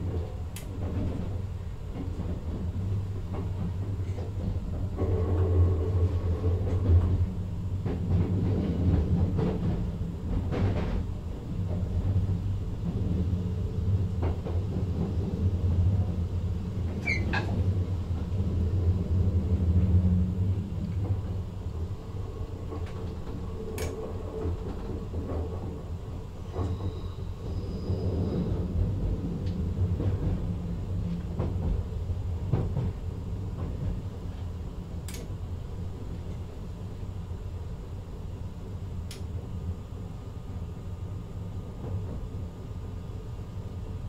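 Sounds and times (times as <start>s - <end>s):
electric train rumbling and humming: 0.0s - 44.0s
brief squeak: 17.0s - 17.6s
sharp click: 35.1s - 35.3s.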